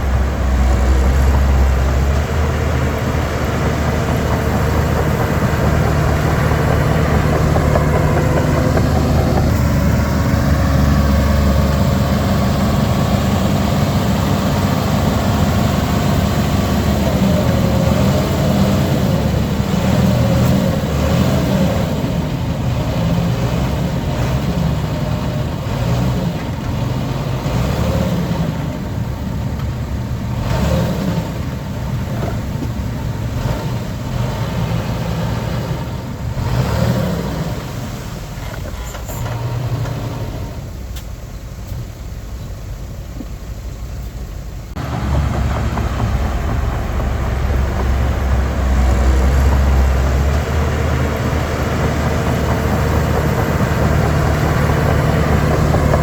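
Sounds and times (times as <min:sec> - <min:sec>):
deep loud engine note: 0:00.0 - 0:26.2, 0:44.7 - 0:56.0
heavy diesel engines running: 0:00.0 - 0:56.0.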